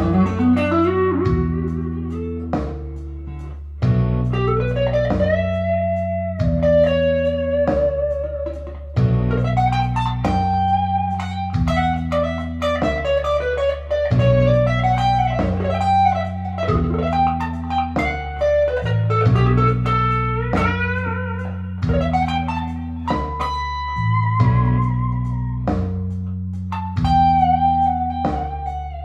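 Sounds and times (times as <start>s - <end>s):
clean electric guitar melody: 0.0s - 29.0s.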